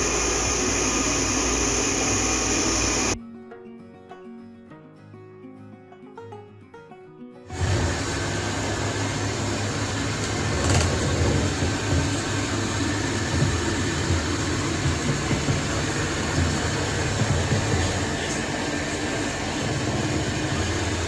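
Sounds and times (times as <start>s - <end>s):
robot vacuum running: 0.0s - 3.2s, 7.5s - 21.0s.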